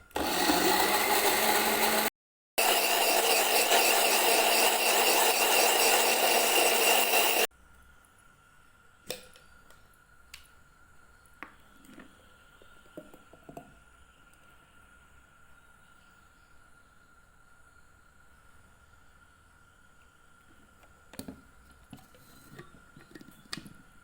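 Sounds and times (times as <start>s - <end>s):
electric blender running: 0.0s - 7.5s.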